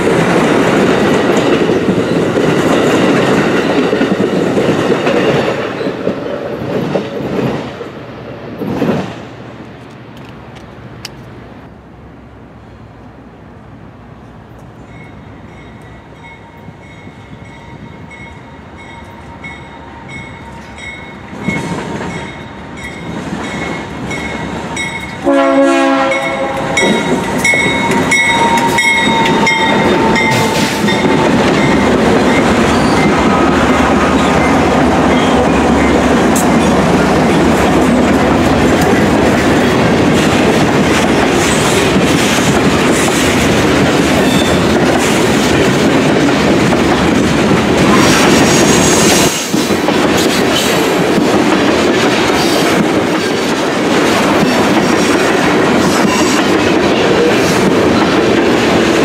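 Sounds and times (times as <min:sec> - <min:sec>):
freight cars clickety-clack: 0:00.0 - 0:11.3, 0:21.3 - 0:59.0
locomotive engine and wheel noise: 0:00.0 - 0:59.0
locomotive bell clanging: 0:14.8 - 0:33.5
train air horn blast: 0:25.2 - 0:27.0.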